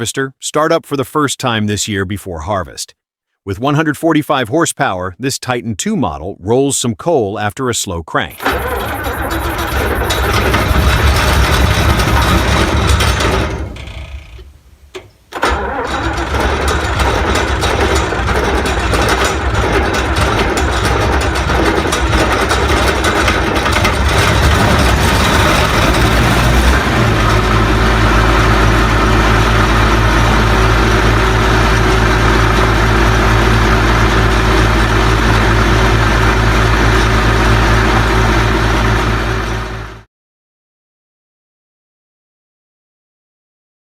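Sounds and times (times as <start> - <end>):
diesel engine running: 8.4 - 40.0.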